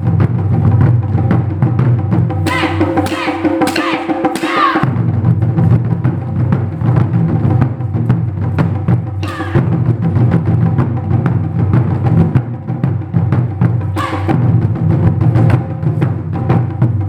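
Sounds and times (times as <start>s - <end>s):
taiko drums in fast rhythm: 0.0s - 17.0s.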